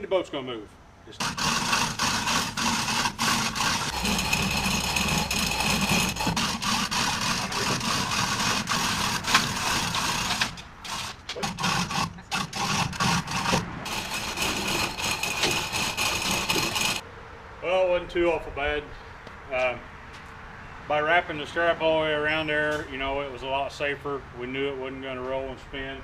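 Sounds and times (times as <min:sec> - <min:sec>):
ratcheting clicks of chain hoist: 0:01.2 - 0:17.0.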